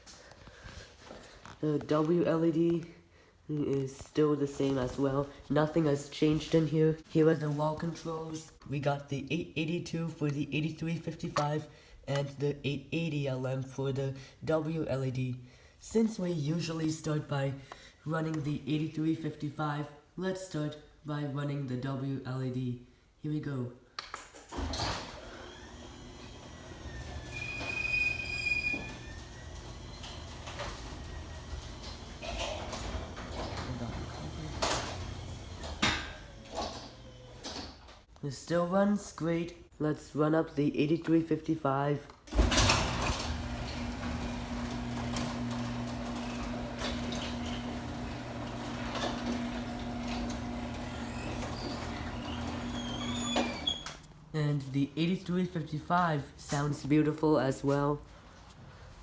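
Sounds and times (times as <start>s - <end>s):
garage door opener clunk: 24.5s - 37.9s, 42.3s - 54.0s
garage door opener motor hum: 24.5s - 38.0s, 42.3s - 54.0s
high squeal: 27.3s - 29.2s.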